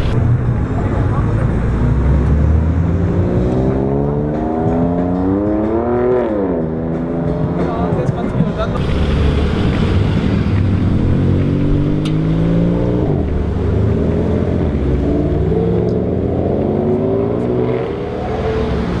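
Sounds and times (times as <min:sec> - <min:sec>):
car engine accelerating hard: 0:08.5 - 0:19.0.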